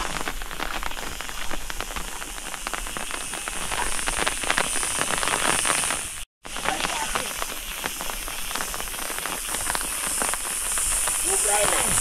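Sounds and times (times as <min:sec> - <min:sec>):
rain patter: 0:00.0 - 0:12.0.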